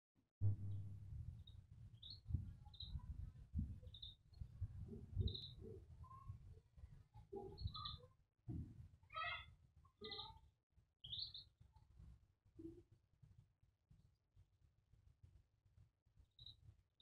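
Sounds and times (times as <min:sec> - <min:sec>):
faint low rumble: 0:00.4 - 0:06.4
birds chirping: 0:01.4 - 0:03.2, 0:03.8 - 0:05.8, 0:07.3 - 0:08.0, 0:09.1 - 0:10.4, 0:11.0 - 0:11.5.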